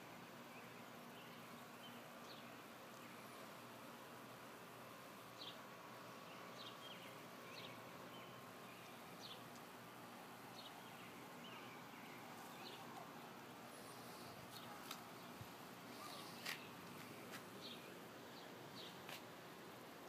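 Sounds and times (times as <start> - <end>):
small birds chirping: 0.0 - 19.3
faint steady hiss: 0.0 - 20.0.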